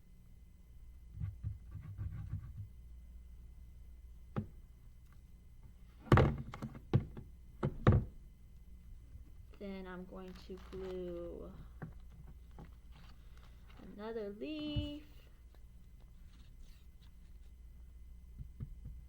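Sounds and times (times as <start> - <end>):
dull thumps on a tabletop: 6.0 - 8.2, 18.4 - 19.0
paper handling rustle: 9.5 - 17.6.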